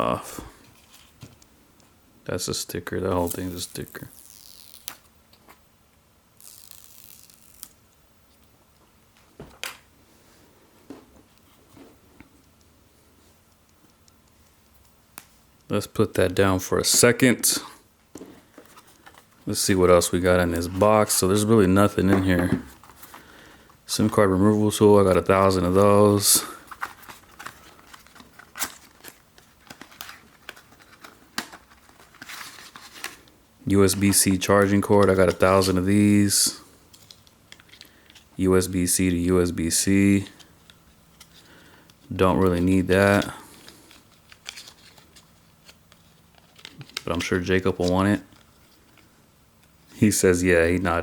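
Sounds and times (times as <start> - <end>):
plastic film peeling: 3.2 - 5.1, 6.4 - 7.8
packaging clicking and crinkling: 26.1 - 33.3.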